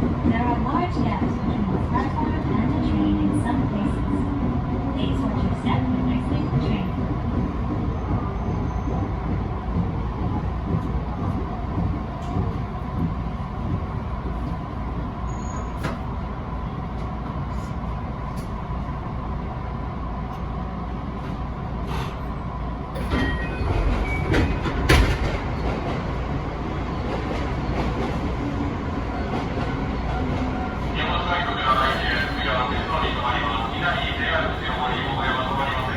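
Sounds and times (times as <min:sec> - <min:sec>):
electric train rumbling: 0:00.0 - 0:35.9
faint train whine: 0:07.7 - 0:35.9
short high wheel squeals: 0:15.3 - 0:15.8.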